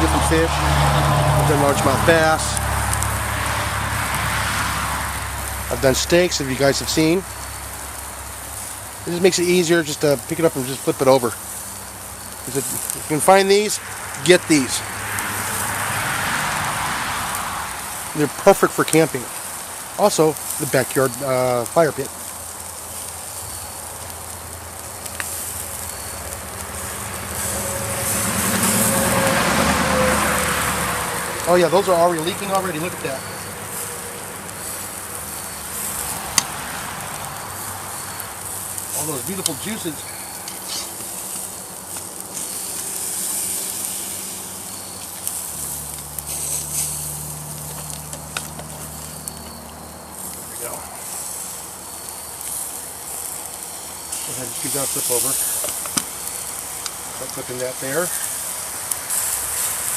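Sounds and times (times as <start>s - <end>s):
meat patties sizzling over fire: 0.0s - 59.9s.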